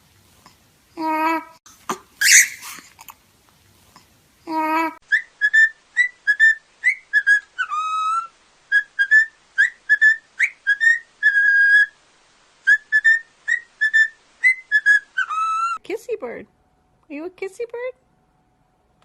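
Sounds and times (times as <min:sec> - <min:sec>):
parrot whistling a tune: 0:02.2 - 0:02.6, 0:05.1 - 0:12.0, 0:12.6 - 0:15.8.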